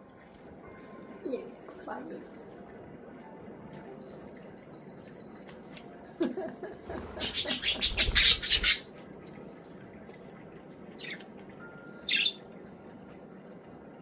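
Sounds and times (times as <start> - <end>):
wings fluttering and splashing water: 6.9 - 11.6
budgie chirping: 7.2 - 8.9.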